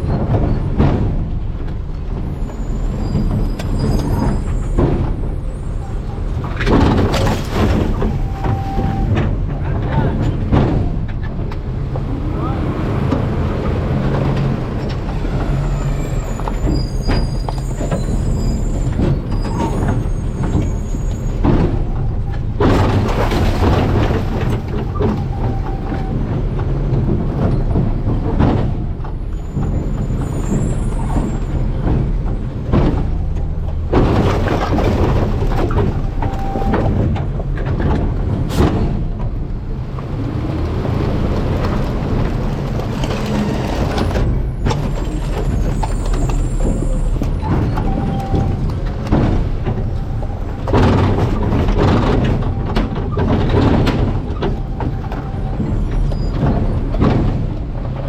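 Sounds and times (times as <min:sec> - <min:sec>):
garbage truck engine running: 0:00.0 - 0:58.0
trash crunching and cracking: 0:31.5 - 0:58.0.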